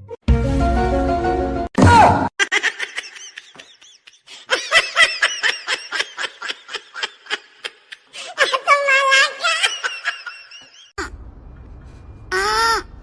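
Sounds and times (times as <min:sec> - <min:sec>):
person laughing: 0:02.4 - 0:11.1.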